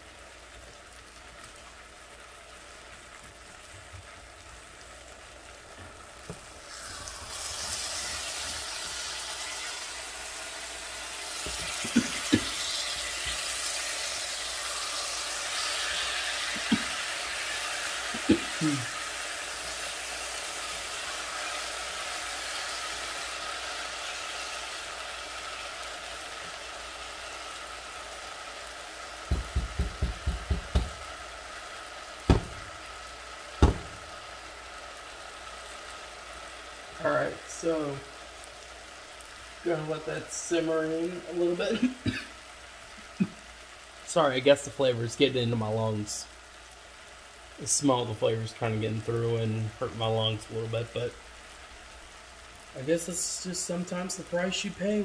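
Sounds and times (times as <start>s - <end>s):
vegetables sizzling in a frying pan: 0.0s - 55.0s
spatula knocking against pan: 29.3s - 31.0s, 32.3s - 32.7s, 33.6s - 34.0s.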